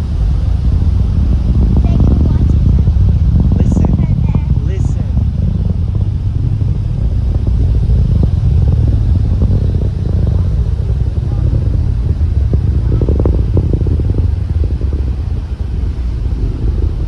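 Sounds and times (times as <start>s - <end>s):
distant rocket engine rumble: 0.0s - 17.0s.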